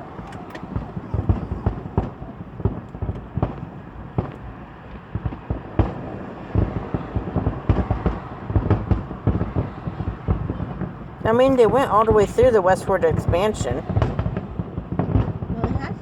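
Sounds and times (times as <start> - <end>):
fireworks booming and banging: 0.0 - 16.0.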